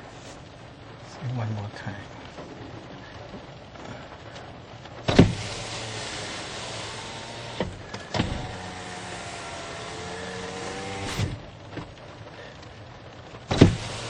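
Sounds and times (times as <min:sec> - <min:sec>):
electric window motor running: 0:05.1 - 0:11.6, 0:13.5 - 0:14.0
window knock: 0:13.5 - 0:13.9.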